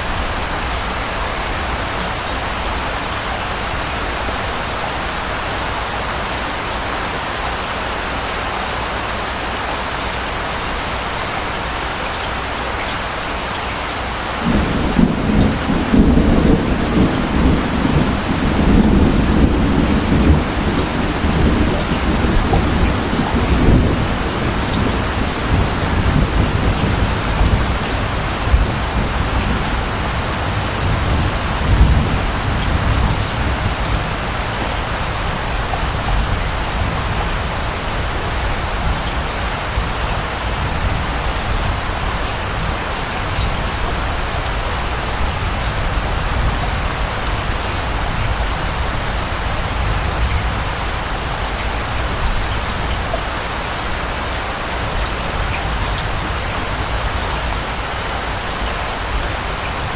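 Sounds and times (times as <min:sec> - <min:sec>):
heavy rain: 0:00.0 - 0:59.9
distant thunder rumbling: 0:14.4 - 0:44.5.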